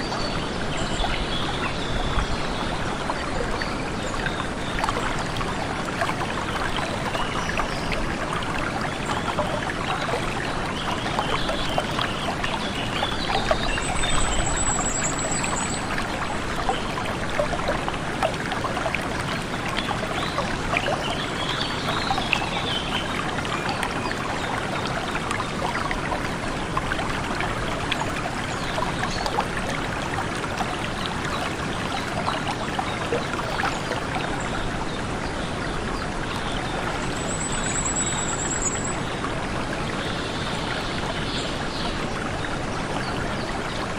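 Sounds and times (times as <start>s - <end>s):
stream water flowing and splashing: 0.0s - 43.9s.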